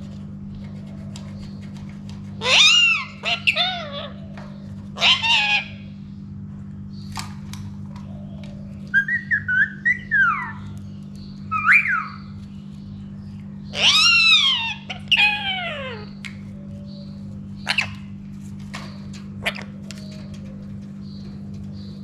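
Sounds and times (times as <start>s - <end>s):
parakeet whistling: 11.5s - 12.3s.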